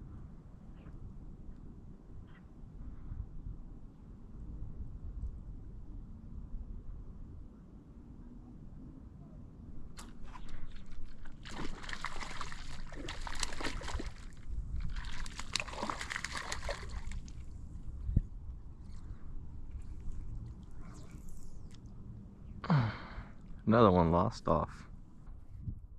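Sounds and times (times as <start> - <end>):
low unsteady rumble: 0.0 - 25.9
water splashing and sloshing: 10.0 - 17.7.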